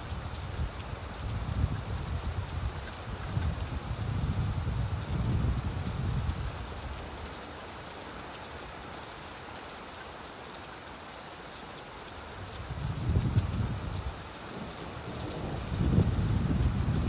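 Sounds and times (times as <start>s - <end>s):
steady rain falling: 0.0s - 17.0s
thunder rumble: 14.6s - 17.0s.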